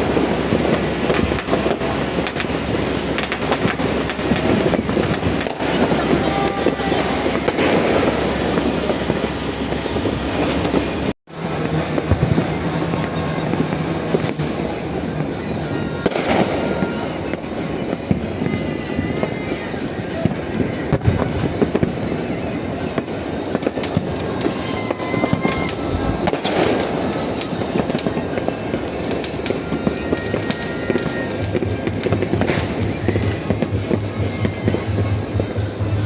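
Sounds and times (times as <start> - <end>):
firecrackers crackling and popping: 0.0 - 36.0
fireworks whistling: 0.0 - 36.0.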